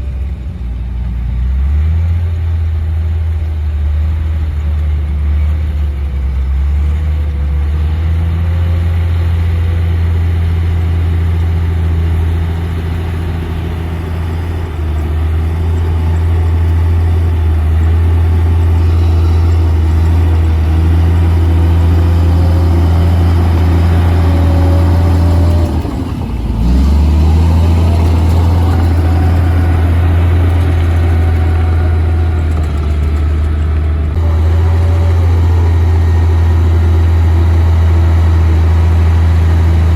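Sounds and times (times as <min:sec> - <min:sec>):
bulldozer diesel engine running: 0:00.0 - 0:39.9
faint wavering whine: 0:03.4 - 0:33.2.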